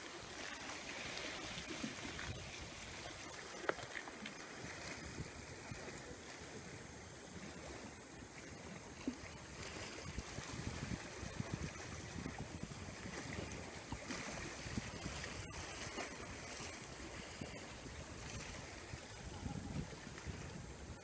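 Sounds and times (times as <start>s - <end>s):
sea water washing: 0.0s - 21.0s
wind buffeting microphone: 4.7s - 5.9s, 9.5s - 21.0s.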